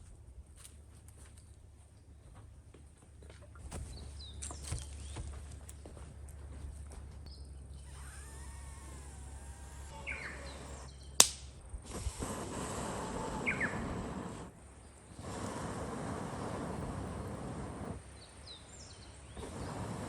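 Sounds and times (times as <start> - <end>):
low outdoor rumble: 0.0 - 20.0
bird calls and chirps: 9.7 - 11.2, 13.4 - 13.9.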